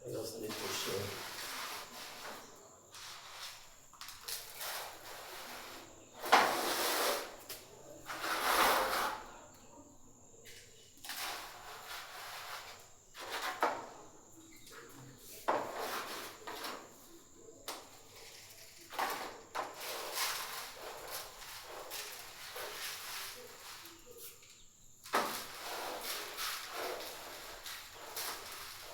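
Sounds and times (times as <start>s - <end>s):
dry feed scooped and poured: 0.4s - 7.4s, 11.1s - 13.6s, 25.2s - 28.9s.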